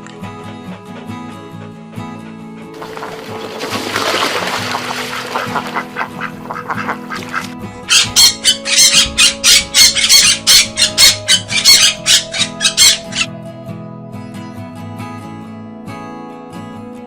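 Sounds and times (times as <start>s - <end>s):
background music: 0.0s - 17.0s
ducks quacking: 2.8s - 13.3s.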